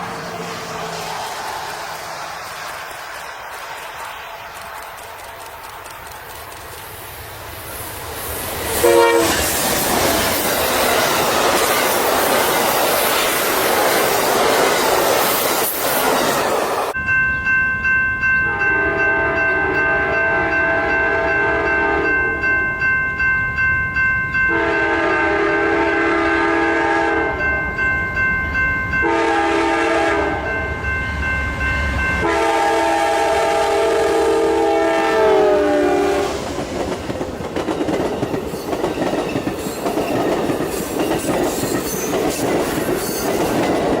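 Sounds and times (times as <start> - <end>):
wheels clicking over rail joints: 0.0 - 8.7, 36.5 - 44.0
passenger train rushing past: 0.0 - 44.0
locomotive horn blasts: 8.8 - 9.4, 18.4 - 22.1, 24.5 - 27.5, 29.0 - 30.6, 32.2 - 36.4.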